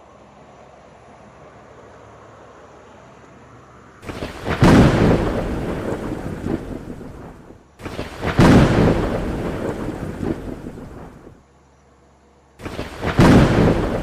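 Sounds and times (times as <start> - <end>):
thunder claps rolling: 4.0 - 11.4, 12.6 - 14.0.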